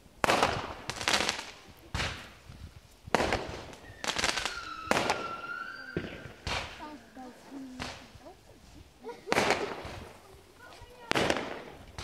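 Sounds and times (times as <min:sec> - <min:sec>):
fireworks bangs with crackling: 0:00.0 - 0:12.0
high whistling tone: 0:03.8 - 0:07.3.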